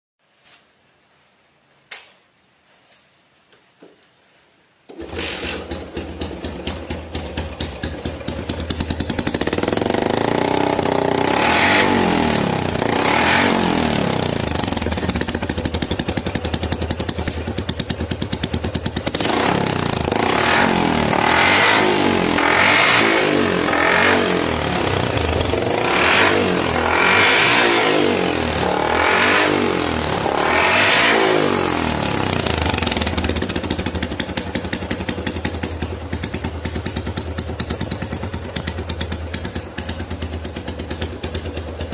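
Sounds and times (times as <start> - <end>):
motorcycle engine revving: 4.9 - 41.9.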